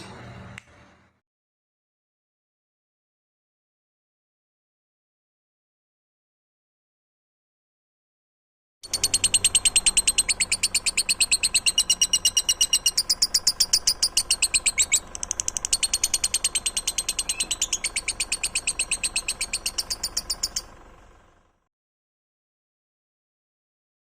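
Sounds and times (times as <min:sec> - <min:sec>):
songbird trilling: 0:08.9 - 0:20.8.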